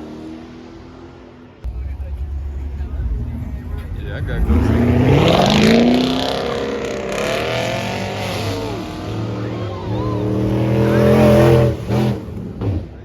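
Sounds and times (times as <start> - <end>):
car engine revving: 0.0 - 13.0
voices shouting: 1.7 - 12.1.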